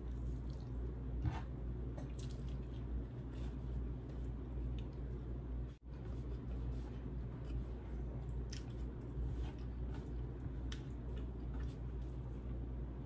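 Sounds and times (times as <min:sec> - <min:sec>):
person chewing food: 0:07.3 - 0:12.6.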